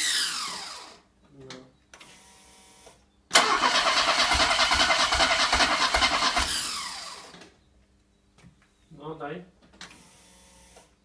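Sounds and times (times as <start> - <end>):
starter motor cranking engine: 3.4 - 7.4.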